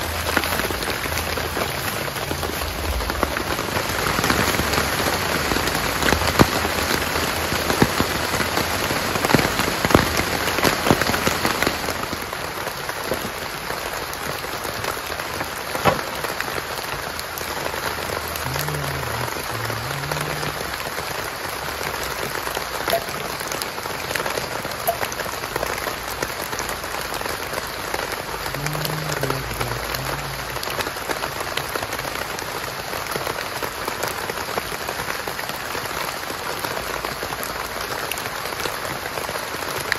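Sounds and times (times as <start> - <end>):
heavy rain on a tent: 0.0 - 39.9.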